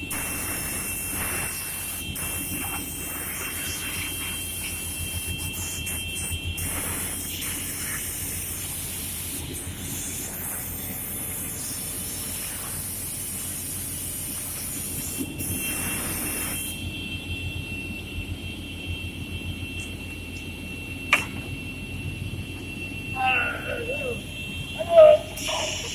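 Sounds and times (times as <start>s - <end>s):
panel saw hum and hiss: 0.0s - 16.8s, 25.3s - 25.9s
steady high whine: 0.0s - 25.9s.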